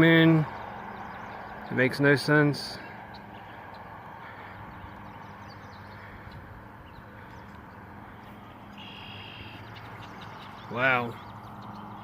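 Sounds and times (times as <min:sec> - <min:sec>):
outdoor background hum: 0:00.0 - 0:12.0.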